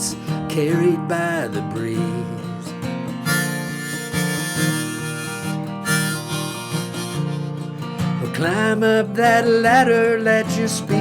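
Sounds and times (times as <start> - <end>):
strummed acoustic guitar: 0.0 - 11.0
harmonica chords: 3.1 - 8.1.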